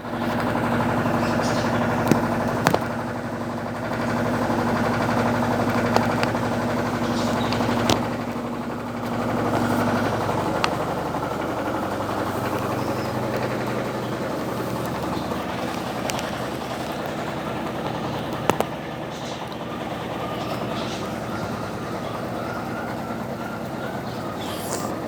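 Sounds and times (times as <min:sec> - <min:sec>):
washing machine motor hum: 0:00.0 - 0:25.0
sharp clicks: 0:04.1 - 0:21.3.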